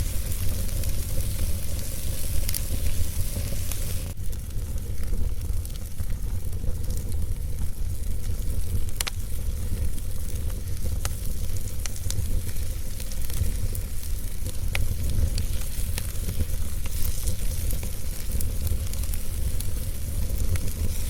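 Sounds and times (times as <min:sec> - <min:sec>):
steady hiss: 0:00.0 - 0:04.3, 0:11.0 - 0:21.0
fire crackling and popping: 0:00.0 - 0:21.0.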